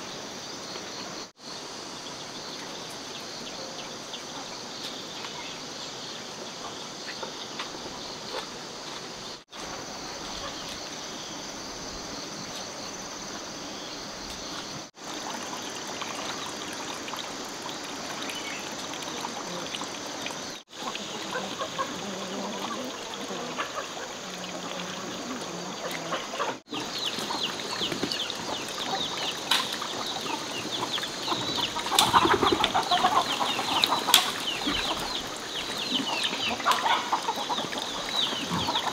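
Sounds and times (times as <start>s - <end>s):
chickens clucking: 20.6s - 38.9s
chicks peeping: 25.7s - 38.9s.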